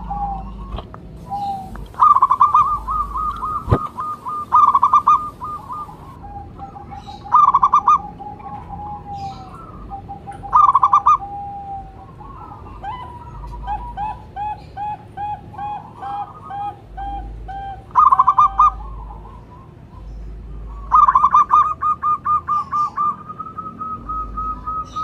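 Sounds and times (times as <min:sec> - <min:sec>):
dove cooing in quick notes: 0:00.0 - 0:19.7
low drawn-out coo: 0:00.0 - 0:19.9.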